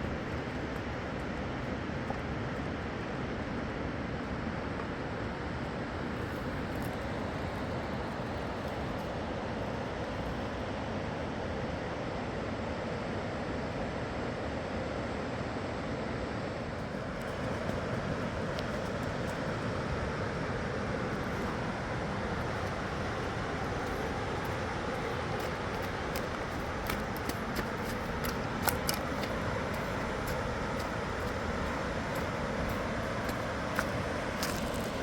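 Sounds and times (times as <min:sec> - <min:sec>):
fast-flowing river rushing: 0:17.0 - 0:35.0.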